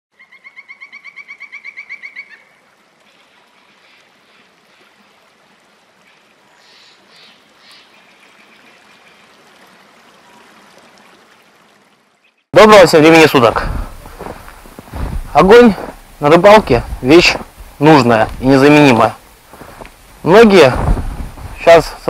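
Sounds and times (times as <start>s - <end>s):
faint outdoor hiss: 0.2s - 22.0s
soft rustles: 13.5s - 22.0s.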